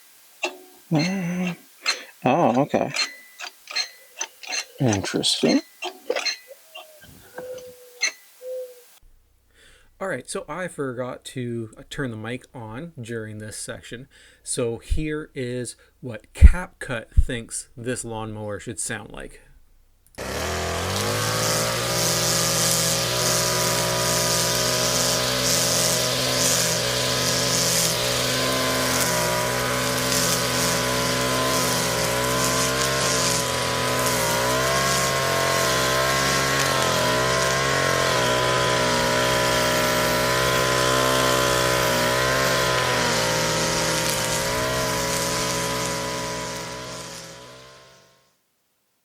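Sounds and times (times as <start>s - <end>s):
small engine running steadily: 20.2s - 48.2s.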